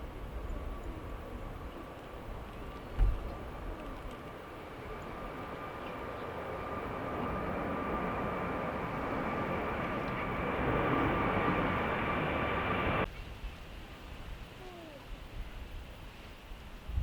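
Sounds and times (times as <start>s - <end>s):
jet airliner engines whining: 0.0s - 13.1s.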